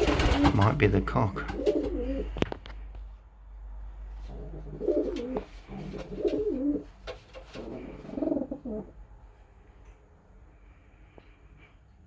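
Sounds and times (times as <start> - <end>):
pigeon cooing: 1.4 - 2.4, 4.2 - 9.0.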